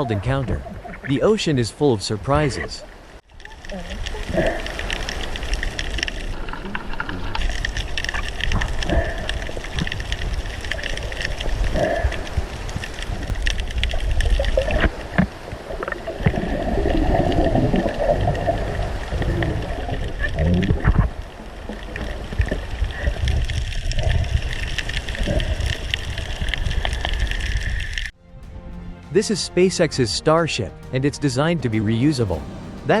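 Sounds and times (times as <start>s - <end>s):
underwater bubbling and gurgling: 0.0s - 1.1s, 2.5s - 28.1s
underwater rumble: 2.8s - 28.6s.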